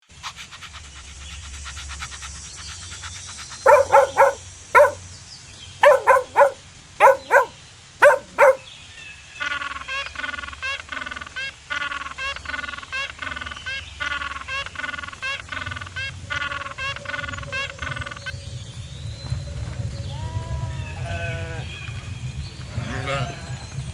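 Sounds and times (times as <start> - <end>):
animal calls: 3.7 - 5.0, 5.8 - 8.6.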